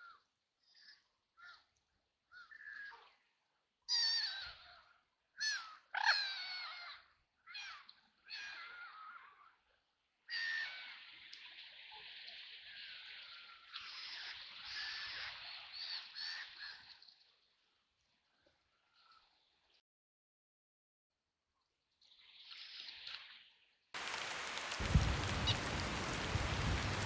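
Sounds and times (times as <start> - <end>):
ducks quacking: 24.0 - 27.0.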